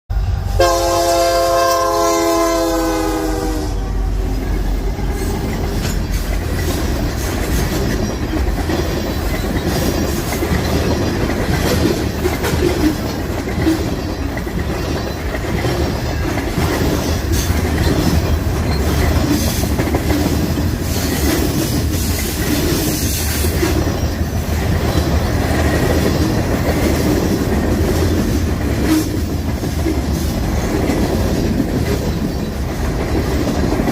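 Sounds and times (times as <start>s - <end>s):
locomotive air horn: 0.1s - 5.5s
train rumble and wheel clatter: 0.1s - 33.9s.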